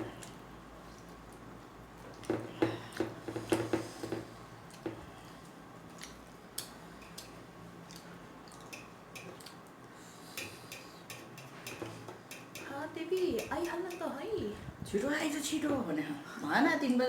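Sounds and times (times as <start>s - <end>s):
wet chewing and squishing: 4.6s - 9.9s.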